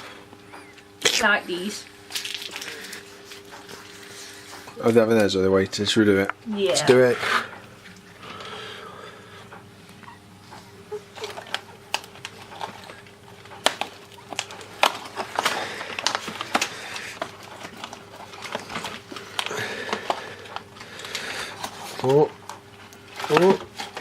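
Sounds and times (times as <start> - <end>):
faint steady hum: 0.0 - 24.0
sharp clicks and crackles: 11.2 - 24.0.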